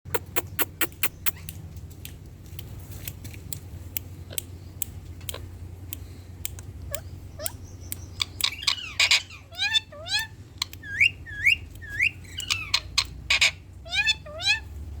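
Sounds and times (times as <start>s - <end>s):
sharp clicks and taps: 0.1s - 6.7s
steady low hum: 0.1s - 13.9s.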